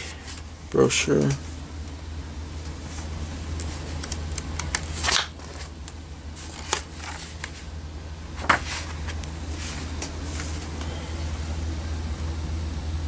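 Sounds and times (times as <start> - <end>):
paper pages rustling and flicking: 2.9 - 7.7, 8.3 - 10.9.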